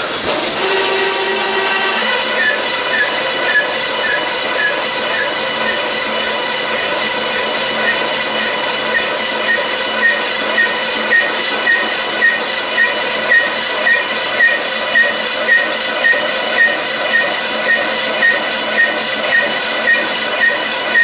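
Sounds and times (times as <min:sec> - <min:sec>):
machinery hissing: 0:00.0 - 0:21.0.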